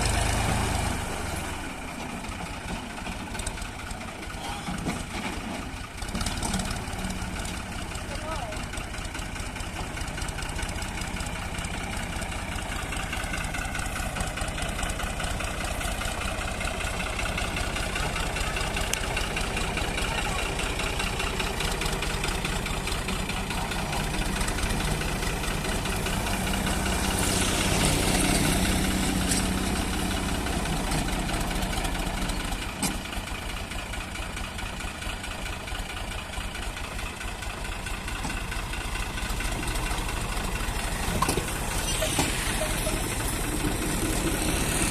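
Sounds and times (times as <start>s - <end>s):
tractor engine running: 0.0s - 44.9s.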